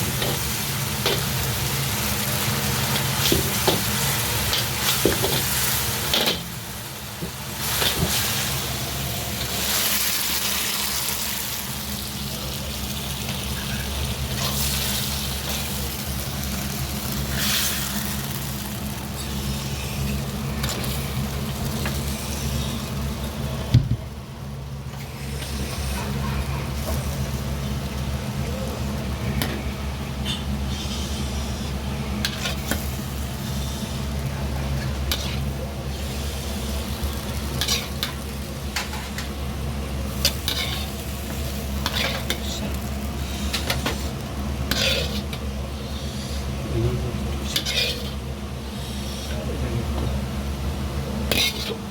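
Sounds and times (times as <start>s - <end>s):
food sizzling in a wok: 0.0s - 46.6s, 47.2s - 49.4s, 50.1s - 51.9s
low hum of burner and exhaust: 0.0s - 51.9s.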